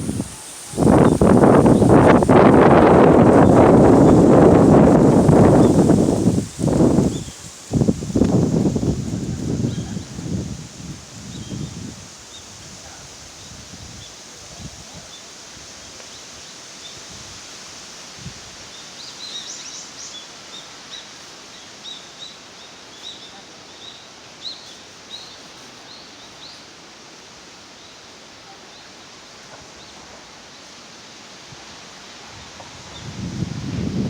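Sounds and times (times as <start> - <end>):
songbirds chirping: 0.0 - 10.2
outdoor background hiss: 0.0 - 34.0.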